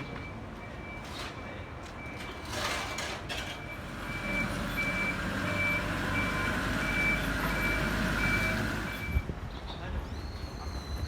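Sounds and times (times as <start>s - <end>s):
reversing alarm beeping: 1.8s - 9.2s.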